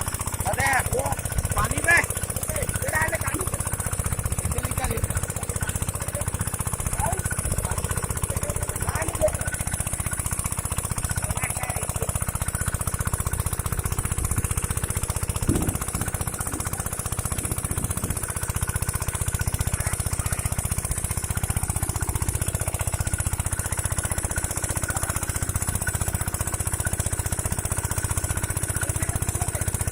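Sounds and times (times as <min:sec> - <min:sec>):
diesel pump engine knocking: 0:00.0 - 0:29.9
loud thud: 0:15.4 - 0:16.2.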